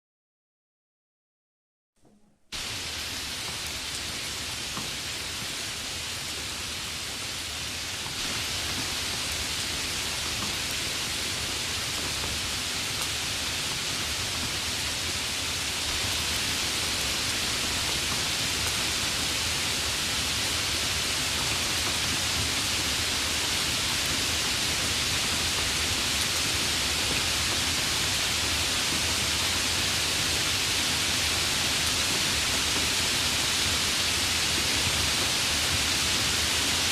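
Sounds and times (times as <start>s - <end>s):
steady rain: 2.6s - 36.9s.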